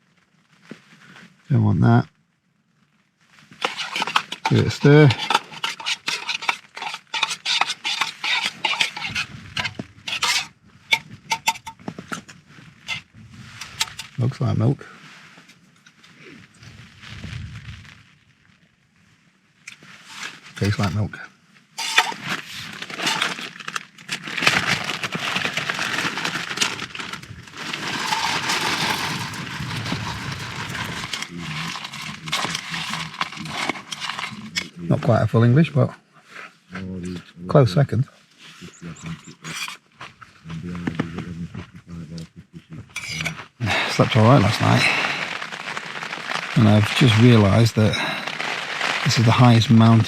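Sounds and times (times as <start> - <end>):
granola and plastic packet crackling: 3.6 - 11.8, 20.0 - 21.0, 21.8 - 34.8, 43.0 - 50.0
spoon scraping a metal pot: 3.6 - 12.2, 13.6 - 14.2, 20.0 - 21.0, 21.8 - 23.4, 24.4 - 34.7, 39.2 - 39.8, 43.0 - 43.4.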